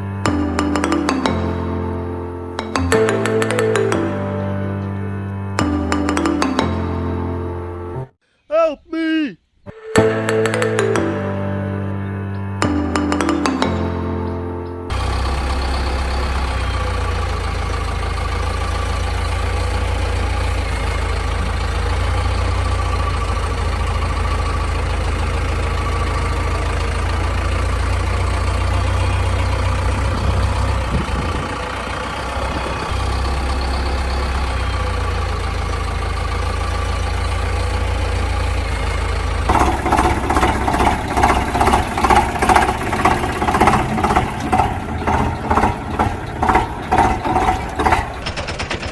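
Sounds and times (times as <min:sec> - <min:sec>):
vehicle engine idling: 0:14.9 - 0:48.9.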